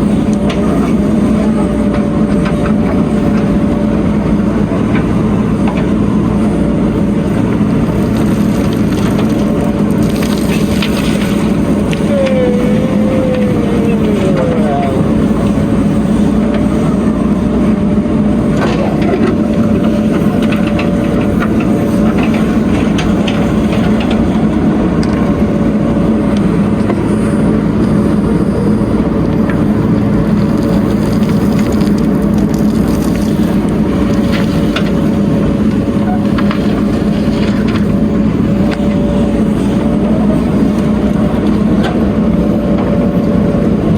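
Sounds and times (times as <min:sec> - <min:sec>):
heavy diesel engine running: 0:00.0 - 0:43.9
whining tone: 0:08.7 - 0:31.5.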